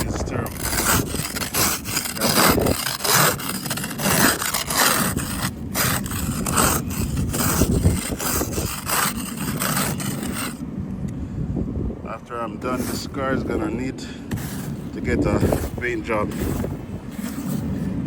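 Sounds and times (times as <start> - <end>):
ice scraped off car glass: 0.0 - 10.6, 12.6 - 18.0.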